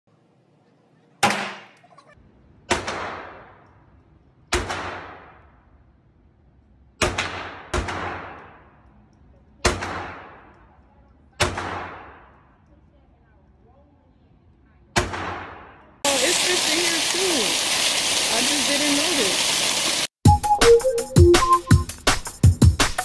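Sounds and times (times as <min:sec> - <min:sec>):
gunshots echoing: 0:02.7 - 0:03.7, 0:04.5 - 0:05.6, 0:07.0 - 0:08.8, 0:09.6 - 0:10.6, 0:11.4 - 0:12.5, 0:15.0 - 0:15.8.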